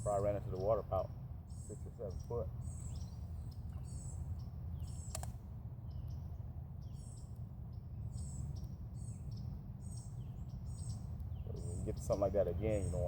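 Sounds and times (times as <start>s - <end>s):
small birds chirping: 0.0s - 13.0s
steady low rumble: 0.0s - 13.0s
sharp click: 5.1s - 5.4s.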